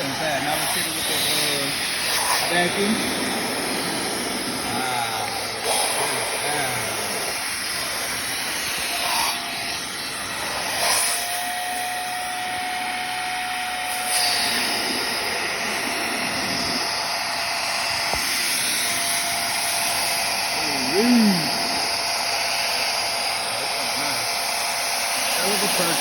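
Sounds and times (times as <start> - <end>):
upholstery cleaner suction motor: 0.0 - 26.0
thin steady whistle: 10.9 - 17.1.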